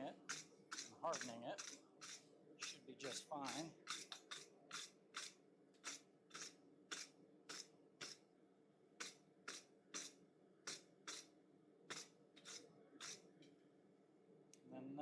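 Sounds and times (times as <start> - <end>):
wire brush scraping steel: 0.0 - 8.2, 9.0 - 11.3, 11.9 - 13.2.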